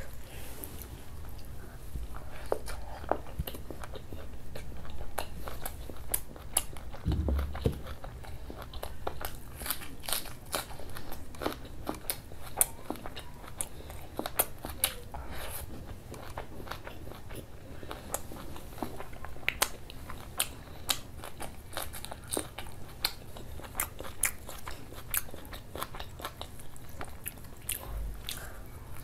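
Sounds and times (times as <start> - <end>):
person chewing food: 0.0 - 29.0
dull low thump: 7.0 - 8.3.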